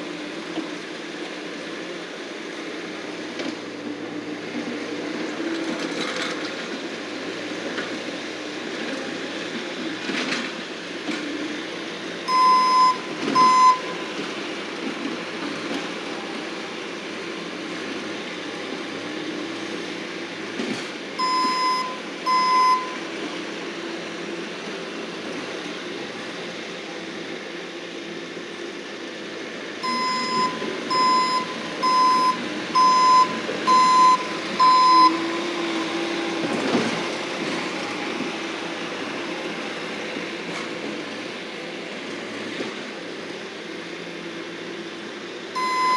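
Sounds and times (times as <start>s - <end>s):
loader engine running: 0.0s - 45.9s
backup alarm beeping: 12.3s - 14.0s, 21.2s - 23.0s, 29.8s - 35.2s, 45.6s - 45.9s.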